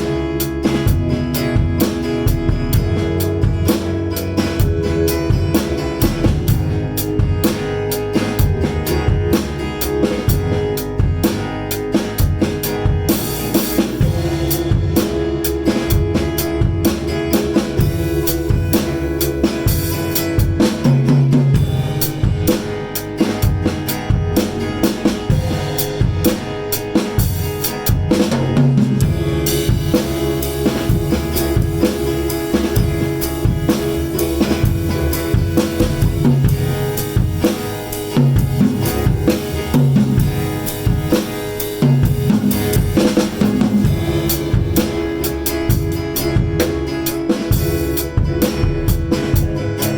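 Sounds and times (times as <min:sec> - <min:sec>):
drum kit: 0:00.0 - 0:49.9
electric guitar notes: 0:00.0 - 0:49.9
keyboard notes: 0:00.0 - 0:49.9
cymbals: 0:12.7 - 0:49.9.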